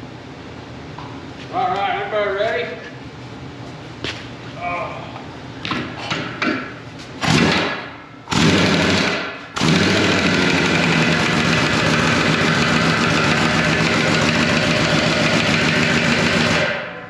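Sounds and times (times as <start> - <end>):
motor machine running: 7.2 - 16.9.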